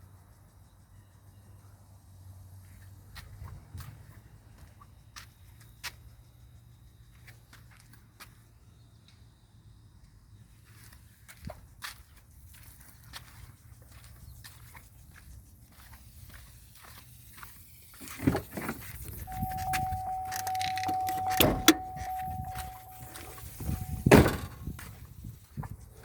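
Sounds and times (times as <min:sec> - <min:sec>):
truck door opening with thump: 0:18.2 - 0:24.7
electronic warning tone: 0:19.3 - 0:24.5
truck door slamming: 0:19.3 - 0:24.7.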